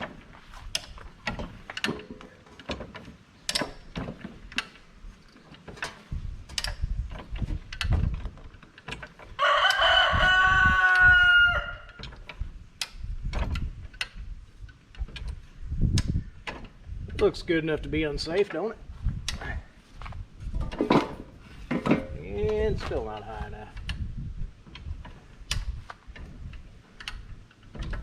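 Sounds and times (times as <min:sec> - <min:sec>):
sharp metallic clicks and knocks: 0:00.0 - 0:09.9, 0:11.9 - 0:17.4, 0:18.2 - 0:28.0
rooster crowing: 0:09.4 - 0:11.9.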